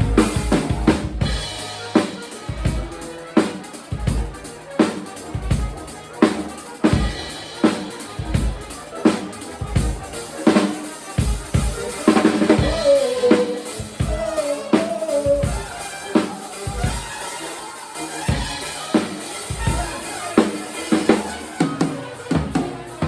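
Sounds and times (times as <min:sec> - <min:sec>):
live band playing: 0:00.0 - 0:23.0.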